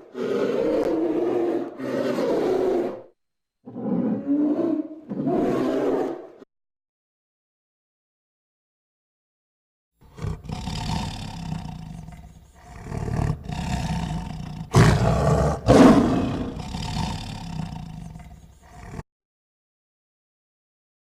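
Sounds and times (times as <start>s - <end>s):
big cat roaring: 0.0s - 6.4s, 10.0s - 19.0s.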